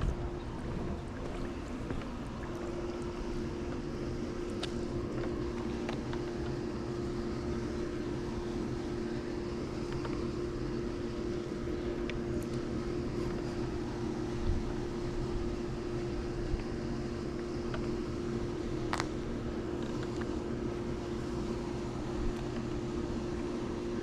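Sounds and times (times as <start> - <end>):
pool pump motor humming: 0.0 - 24.0.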